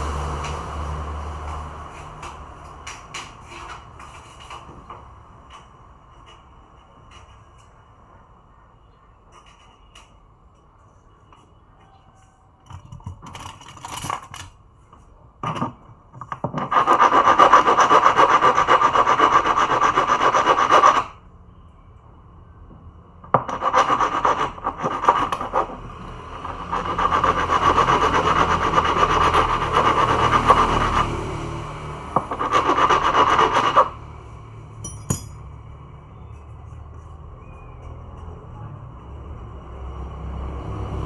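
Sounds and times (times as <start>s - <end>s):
rasping scraping of hard surface: 16.5s - 21.1s, 23.4s - 31.2s, 32.2s - 34.0s.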